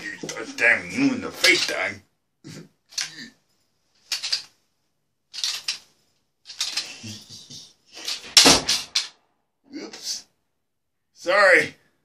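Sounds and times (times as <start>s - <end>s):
clicking rattling bursts: 5.4s - 5.8s.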